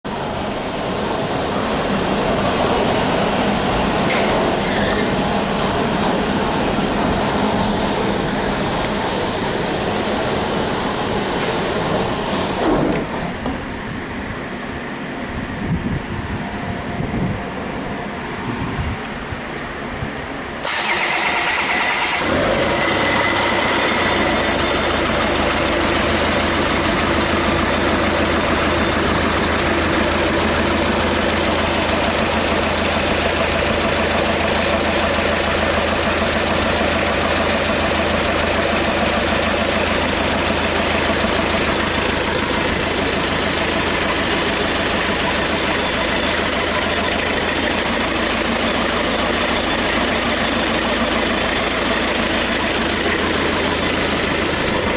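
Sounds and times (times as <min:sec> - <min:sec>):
diesel engine idling: 0:00.0 - 0:54.9
diesel engine cranking and starting: 0:19.0 - 0:54.9.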